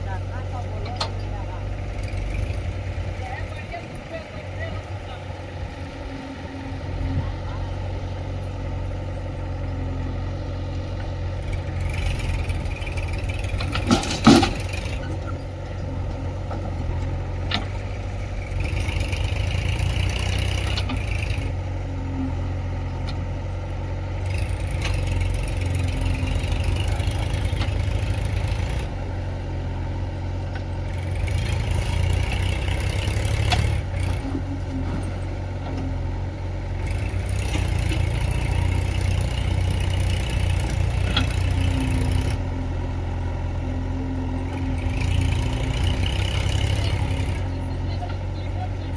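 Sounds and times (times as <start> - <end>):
diesel engine running: 0.0 - 48.9
loud metallic clank: 13.6 - 15.0.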